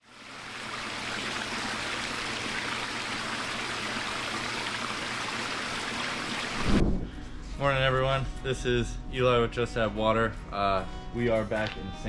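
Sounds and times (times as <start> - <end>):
water running over waterfall: 0.0 - 6.8.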